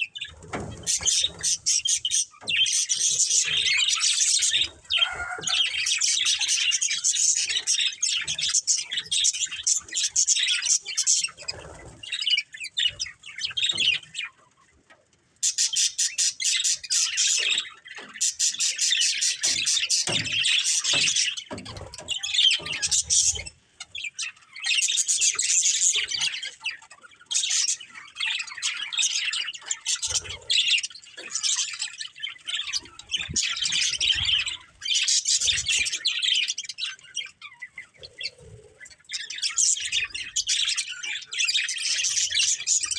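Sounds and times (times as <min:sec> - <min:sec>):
budgerigars chirping and chattering: 0:00.0 - 0:42.9.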